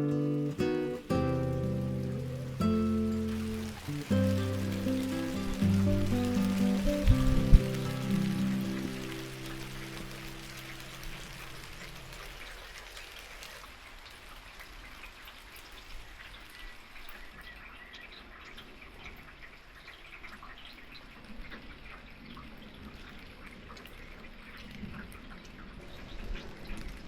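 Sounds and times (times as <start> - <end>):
small birds chirping: 0.0 - 13.6
rain falling and dripping: 0.0 - 27.0.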